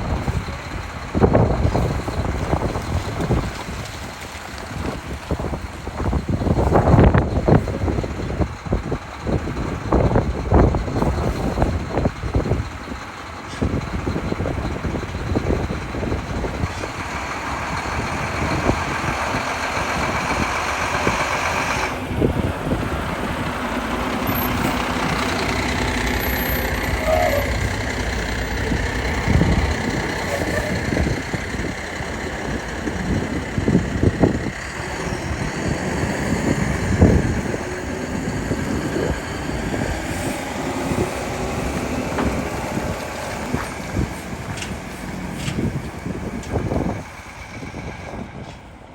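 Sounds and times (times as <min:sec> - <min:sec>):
city street traffic: 0:00.0 - 0:48.9
heavy truck engine running: 0:00.0 - 0:48.9.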